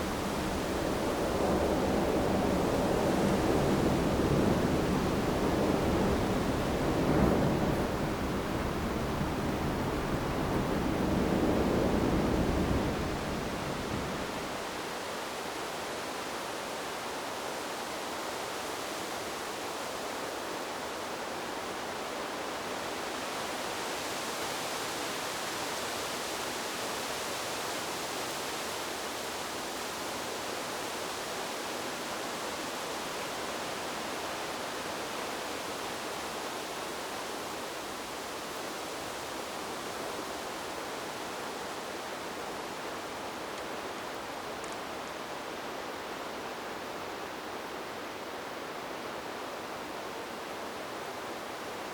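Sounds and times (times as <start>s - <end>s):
wind rustling bamboo leaves: 0.0s - 51.9s.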